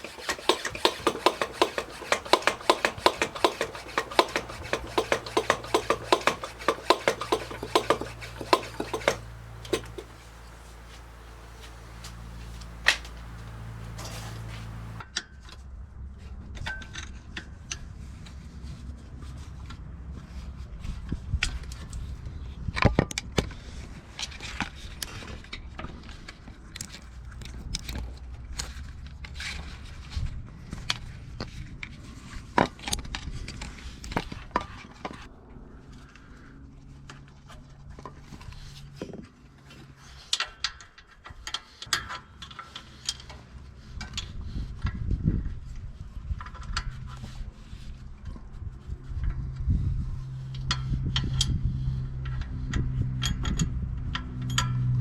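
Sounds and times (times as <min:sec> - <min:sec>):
sharp knocks: 0:00.0 - 0:15.0
small tools clicking and tapping: 0:00.0 - 0:15.0.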